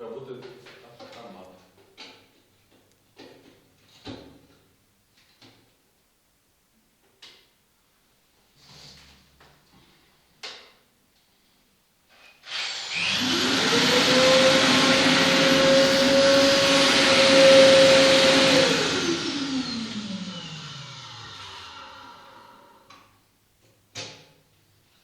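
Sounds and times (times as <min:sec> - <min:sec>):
vacuum cleaner motor whining: 0:12.5 - 0:22.7.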